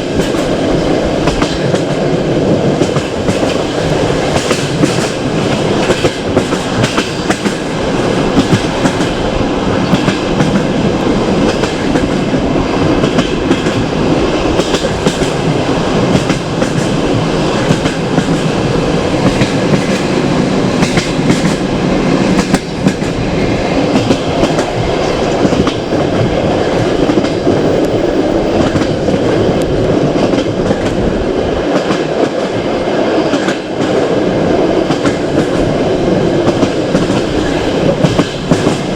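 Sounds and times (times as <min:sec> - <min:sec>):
clickety-clack over rail joints: 0:00.0 - 0:38.9
train wheels rumbling on rails: 0:00.0 - 0:38.9.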